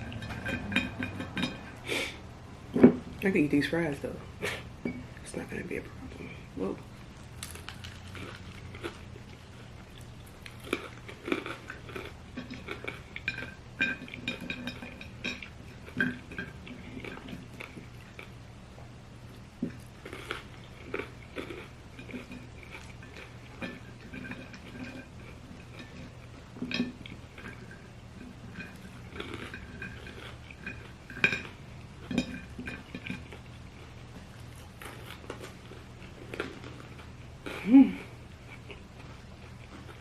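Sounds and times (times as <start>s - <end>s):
cutlery clinking on a plate: 0.0s - 1.7s
person chewing: 6.1s - 18.4s, 19.3s - 40.0s.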